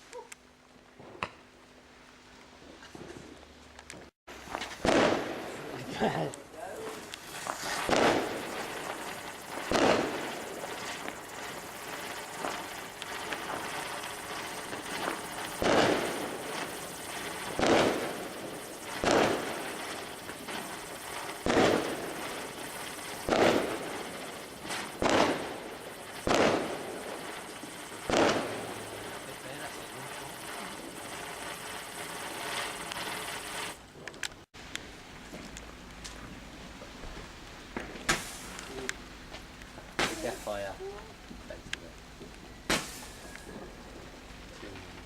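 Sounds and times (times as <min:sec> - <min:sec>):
faint firework pops: 0:03.9 - 0:30.8, 0:37.0 - 0:45.0
fireworks bangs: 0:04.3 - 0:33.8, 0:36.9 - 0:45.0.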